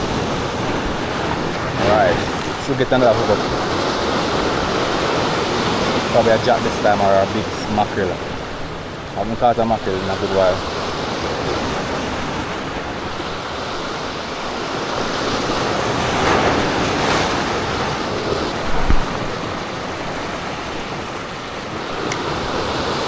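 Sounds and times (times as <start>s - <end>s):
sea surf washing on shore: 0.0s - 23.0s
wind buffeting microphone: 0.0s - 23.0s
low thump: 18.7s - 19.3s.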